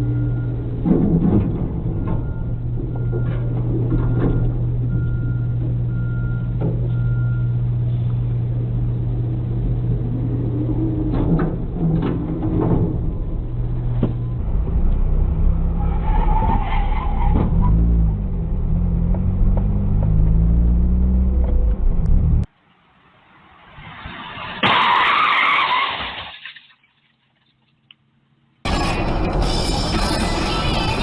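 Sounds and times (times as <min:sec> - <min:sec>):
heavy engine droning: 0:00.0 - 0:16.2.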